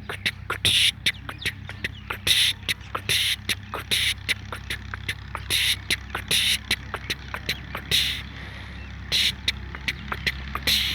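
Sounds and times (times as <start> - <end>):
birds rasping calls: 0.0 - 10.9
steady low hum: 0.0 - 10.9.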